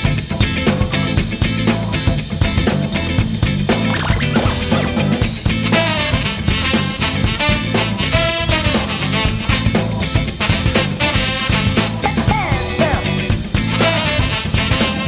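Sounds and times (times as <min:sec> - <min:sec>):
live band playing jazz-funk: 0:00.0 - 0:15.0
bending sliding melody line: 0:03.9 - 0:05.9.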